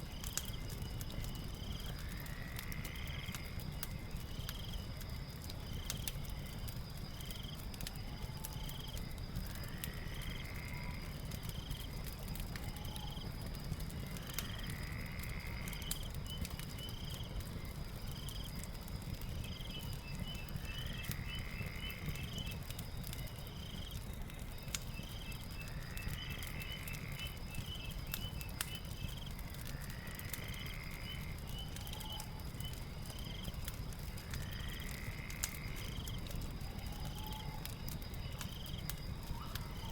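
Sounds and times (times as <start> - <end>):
fire crackling and popping: 0.0 - 39.9
high insect drone: 0.9 - 4.8, 8.8 - 11.7, 14.0 - 16.2, 29.6 - 31.4, 34.2 - 39.9.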